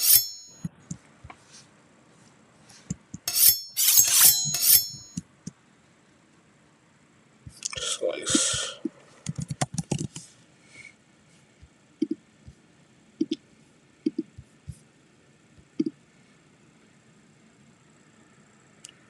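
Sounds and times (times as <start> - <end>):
computer mouse clicking: 9.3 - 10.2.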